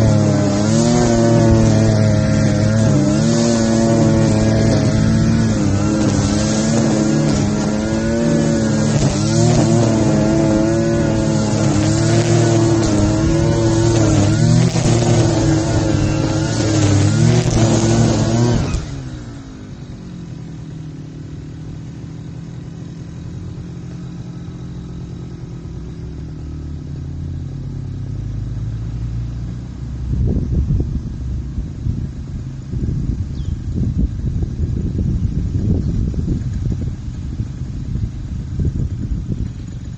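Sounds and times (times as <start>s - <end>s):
grass cutter petrol engine running: 0.0s - 28.0s.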